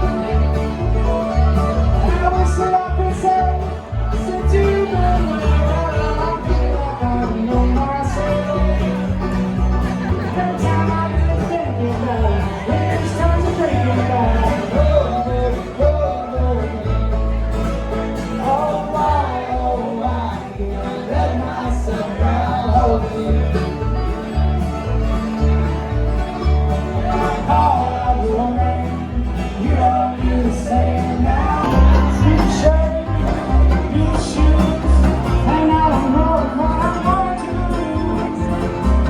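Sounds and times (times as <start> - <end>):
person singing: 0.0 - 9.3, 26.9 - 39.0
banjo: 0.0 - 39.0
bass line: 0.0 - 39.0
guitar: 0.0 - 39.0.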